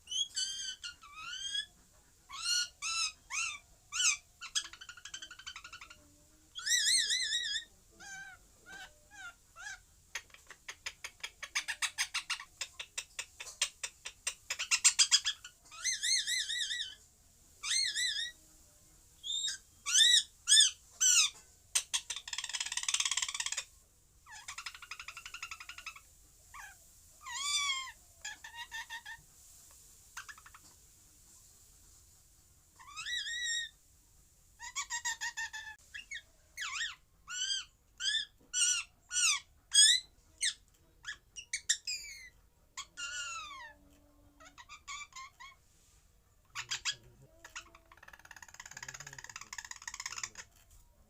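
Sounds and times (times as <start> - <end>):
parrot squawking: 0.1 - 1.7, 2.3 - 6.0, 6.6 - 17.0, 17.6 - 18.4, 19.2 - 29.2, 32.8 - 33.7, 34.6 - 43.8, 44.4 - 45.6, 46.5 - 50.5
parrot rasping call: 24.2 - 29.2, 32.8 - 33.7, 34.6 - 45.6, 46.5 - 50.4.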